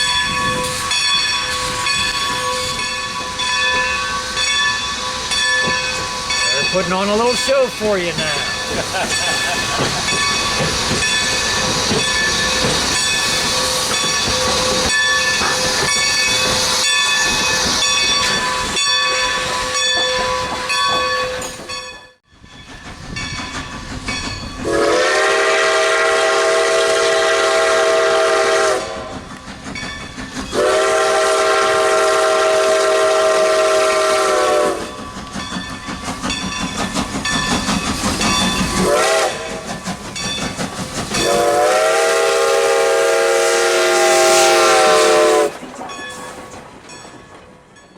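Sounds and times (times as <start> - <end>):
steam locomotive hissing: 0.0 - 21.8, 22.4 - 47.0
steam whistle blasts: 24.6 - 29.2, 30.5 - 35.0, 38.8 - 39.7, 41.2 - 45.6.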